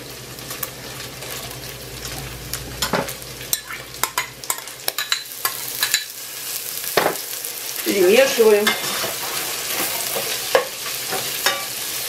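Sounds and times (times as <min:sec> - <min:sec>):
chicken sizzling in a pot: 0:00.0 - 0:12.0.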